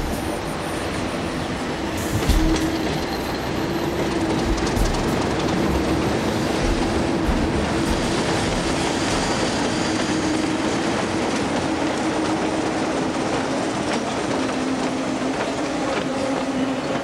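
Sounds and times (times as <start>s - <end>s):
low drone: 0.0s - 11.3s
train wheels rushing on rail: 0.0s - 17.0s.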